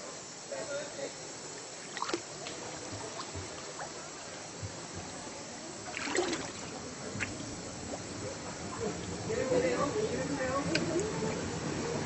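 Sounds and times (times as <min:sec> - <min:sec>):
flowing river water: 0:00.0 - 0:12.0.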